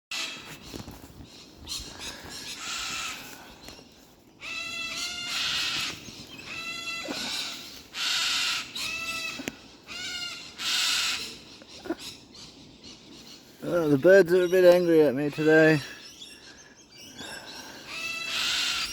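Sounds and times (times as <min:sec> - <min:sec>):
cockatoos screeching: 0:04.4 - 0:12.0, 0:17.8 - 0:18.9.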